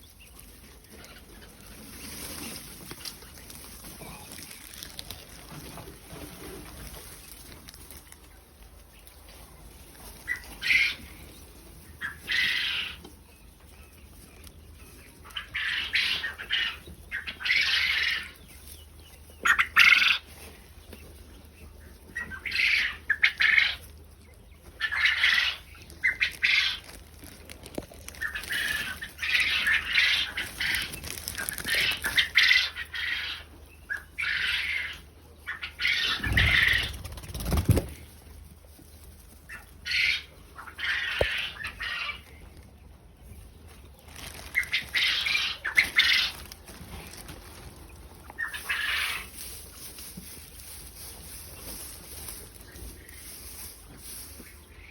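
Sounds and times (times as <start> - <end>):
quail flapping wings: 35.9 - 38.1.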